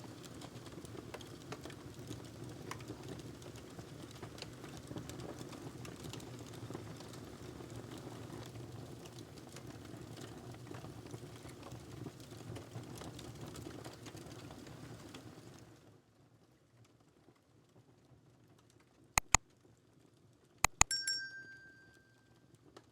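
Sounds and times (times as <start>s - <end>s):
wood fire crackling: 0.1s - 15.3s.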